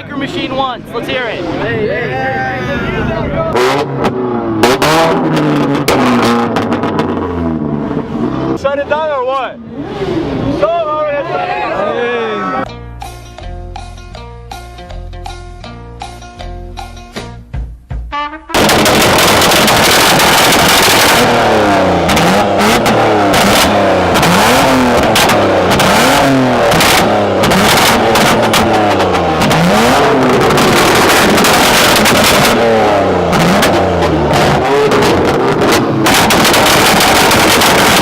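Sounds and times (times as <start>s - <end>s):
car engine revving: 0.0s - 12.6s, 18.5s - 38.0s
exhaust crackles and pops: 3.6s - 7.8s, 18.5s - 38.0s.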